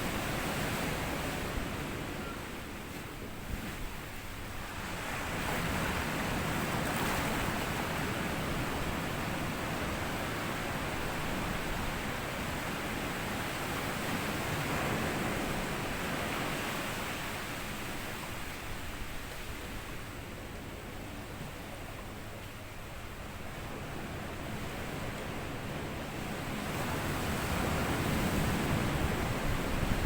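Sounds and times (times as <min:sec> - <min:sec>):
sea waves washing over sand: 0:23.2 - 0:30.0.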